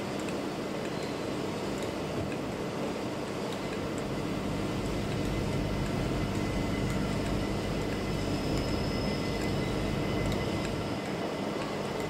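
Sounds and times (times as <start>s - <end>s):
faint high whine: 3.5s - 12.0s
train rumbling: 4.0s - 12.0s.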